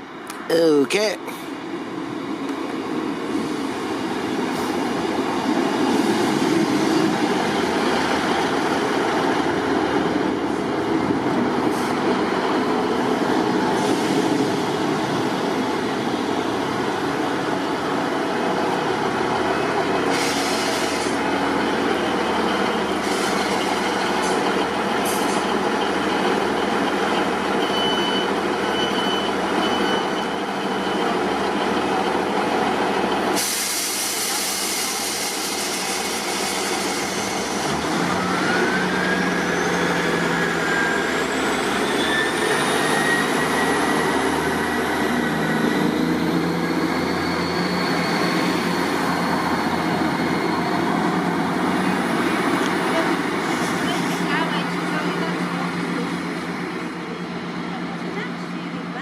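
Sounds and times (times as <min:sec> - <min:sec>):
diesel train running: 0:00.0 - 0:59.0
train whine rising in pitch: 0:33.4 - 0:53.6.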